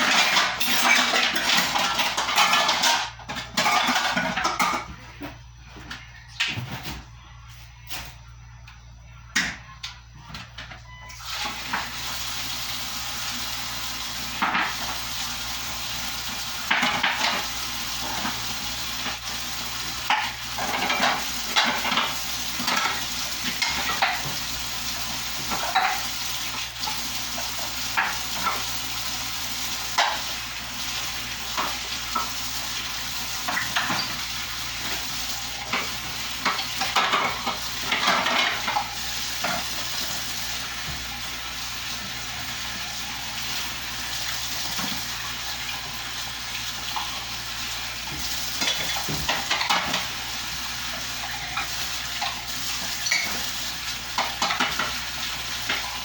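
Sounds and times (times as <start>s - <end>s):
dishes and pots clinking: 0.0s - 7.0s, 14.4s - 15.0s, 16.6s - 18.4s, 20.0s - 28.7s, 29.9s - 30.3s, 33.4s - 40.2s, 48.1s - 50.2s, 51.2s - 56.0s.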